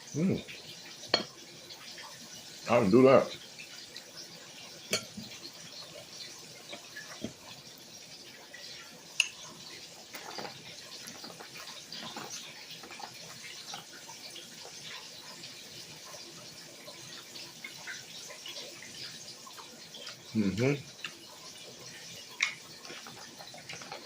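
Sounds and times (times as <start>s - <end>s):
person chewing food: 20.9s - 24.0s.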